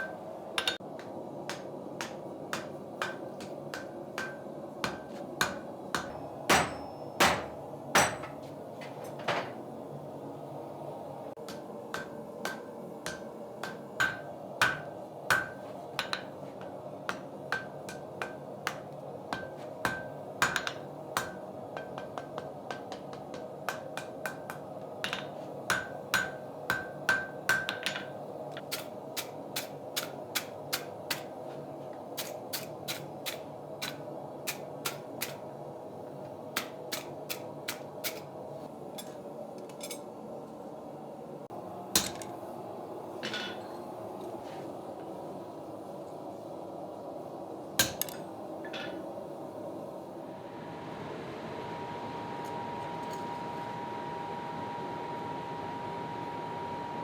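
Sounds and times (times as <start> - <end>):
hammer striking hot iron: 0.0 - 8.5, 11.4 - 31.4, 47.8 - 49.0
ringing taps on anvil: 2.6 - 8.5.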